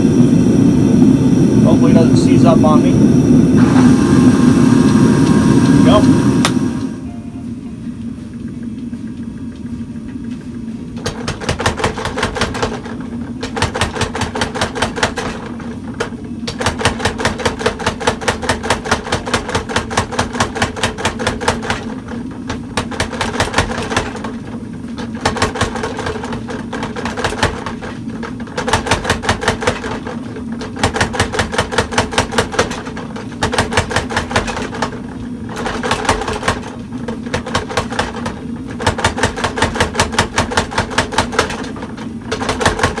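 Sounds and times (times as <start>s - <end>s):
motor humming: 0.0s - 11.6s
power hammer striking steel: 11.0s - 43.0s.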